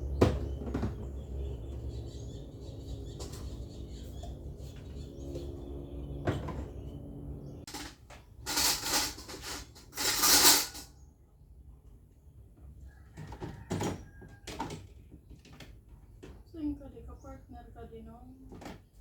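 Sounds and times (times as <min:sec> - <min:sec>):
light knocks and clatters: 0:06.2 - 0:07.0, 0:13.0 - 0:16.5.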